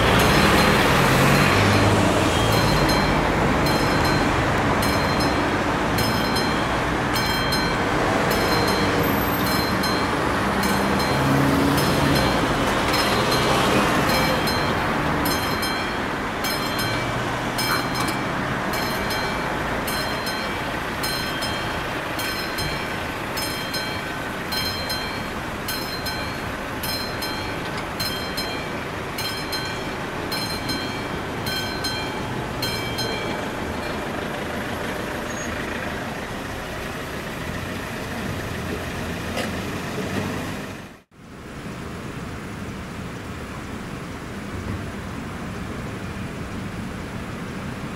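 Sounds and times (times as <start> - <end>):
rumble of passing train: 0.0 - 47.9
level crossing bell ringing: 0.2 - 35.4.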